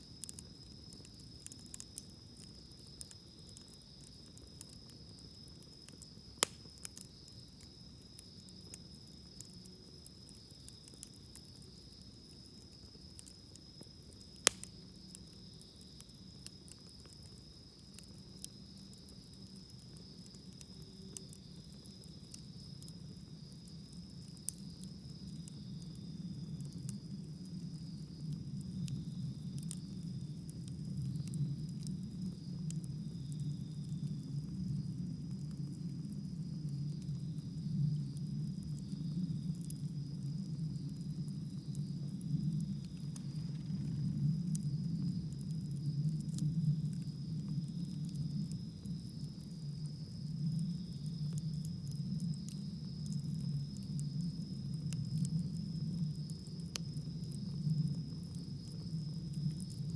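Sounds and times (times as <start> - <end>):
campfire crackling and popping: 0.0 - 59.9
high insect trill: 35.8 - 59.9.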